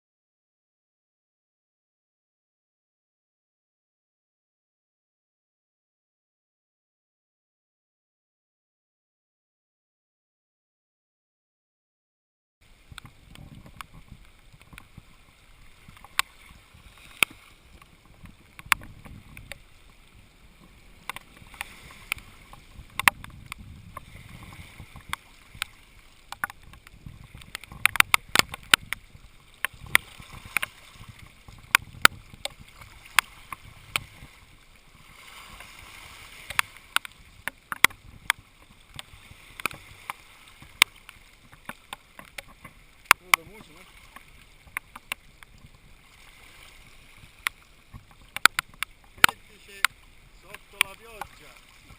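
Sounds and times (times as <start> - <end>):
water lapping against boat: 12.6 - 51.9
raindrops ticking on hard surfaces: 12.8 - 34.3, 36.5 - 45.9, 47.3 - 51.5.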